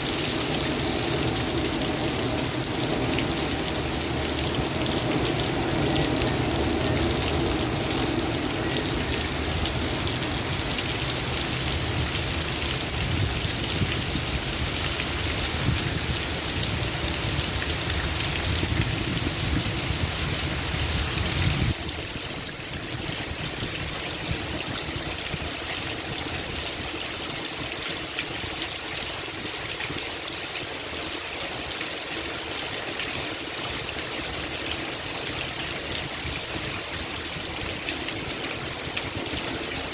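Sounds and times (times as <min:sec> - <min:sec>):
low wind rumble: 0:00.0 - 0:27.0
heavy rain falling: 0:00.0 - 0:39.9.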